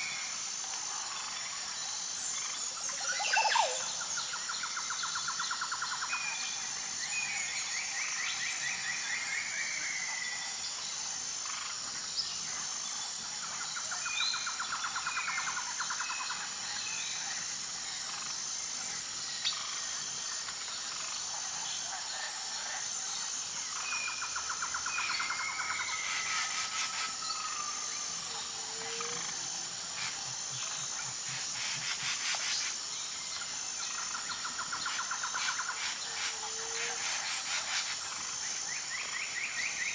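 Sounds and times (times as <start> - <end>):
high insect buzz: 0.0 - 39.9.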